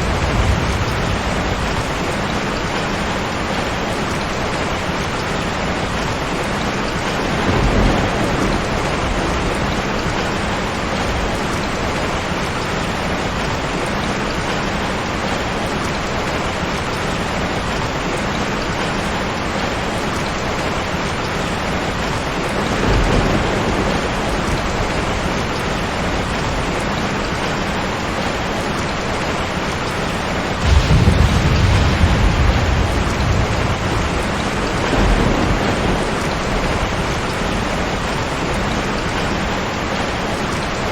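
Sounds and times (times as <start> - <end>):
low thunder rumbling: 0.0 - 4.4, 5.9 - 12.4, 22.1 - 27.4, 30.5 - 40.9
heavy rain: 0.0 - 40.9.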